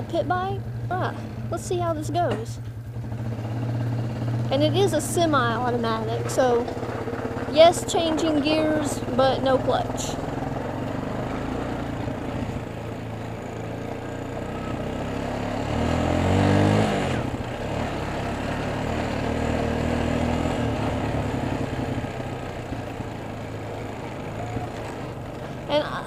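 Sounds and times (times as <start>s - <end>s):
atv engine revving: 0.0s - 26.0s.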